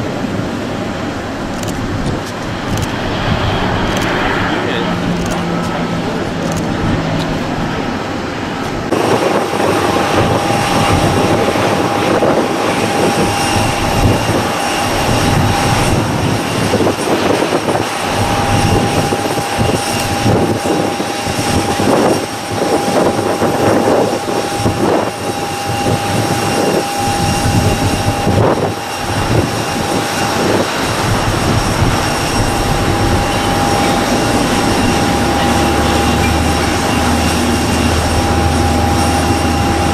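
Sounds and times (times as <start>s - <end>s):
jet engine whine: 0.0s - 39.9s
jet engines roaring: 0.0s - 39.9s.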